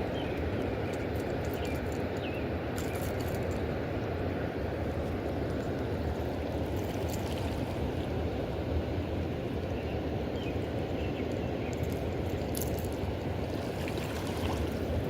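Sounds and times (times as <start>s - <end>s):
river water rushing: 12.2s - 15.0s.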